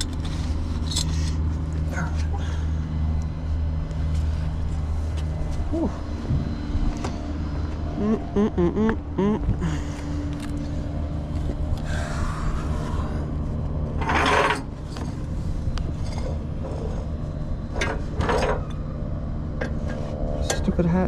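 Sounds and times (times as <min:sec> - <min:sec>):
metal scraping and rubbing: 0:13.9 - 0:18.7.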